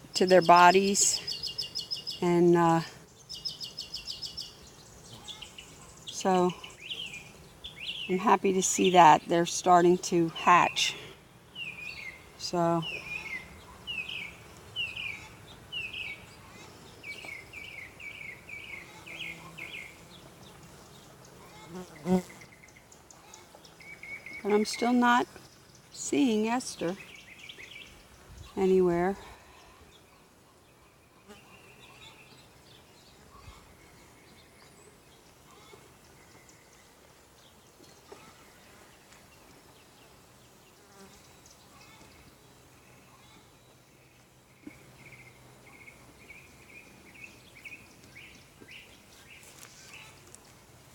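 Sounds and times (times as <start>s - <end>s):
honeybees buzzing: 2.4s - 29.2s.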